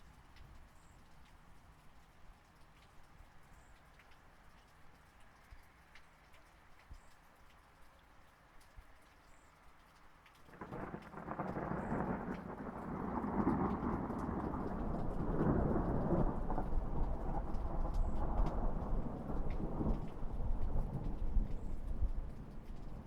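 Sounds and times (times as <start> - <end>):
steady rain: 0.0 - 23.0
rolling thunder: 10.6 - 23.0.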